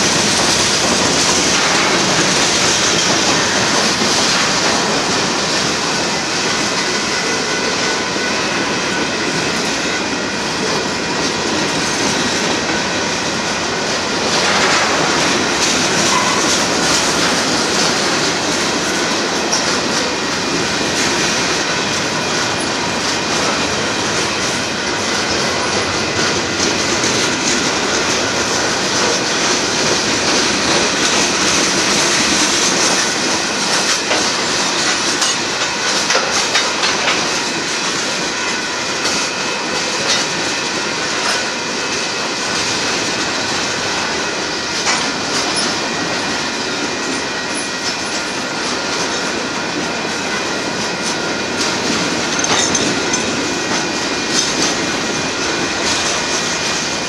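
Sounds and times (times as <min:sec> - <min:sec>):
freight train wheels rumbling: 0:00.0 - 0:57.0
wheels clicking over rail joints: 0:10.6 - 0:38.3, 0:44.7 - 0:57.0.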